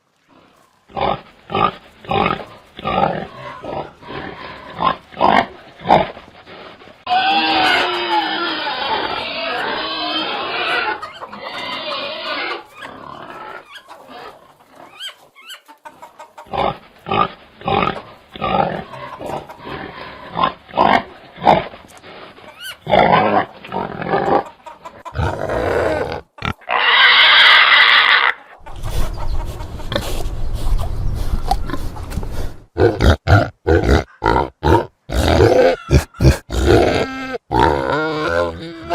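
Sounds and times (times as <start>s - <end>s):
pigs squealing: 1.0s - 15.7s, 16.4s - 21.8s, 22.4s - 30.2s, 32.8s - 38.9s
pig grunts: 25.1s - 28.4s, 32.8s - 38.9s.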